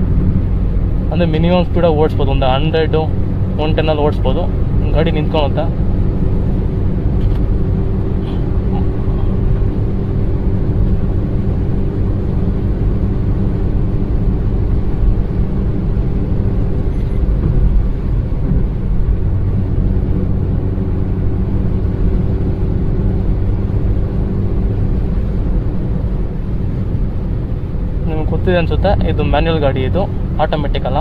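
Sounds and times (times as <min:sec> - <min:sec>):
car engine and tyres rumbling: 0:00.0 - 0:31.0.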